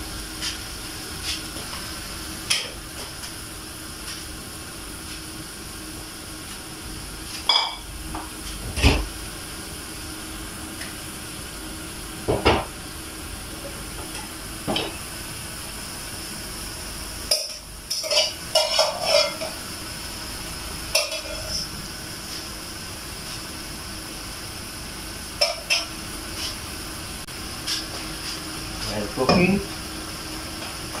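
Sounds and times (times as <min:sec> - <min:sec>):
kitchen utensils clinking: 0:17.3 - 0:19.6.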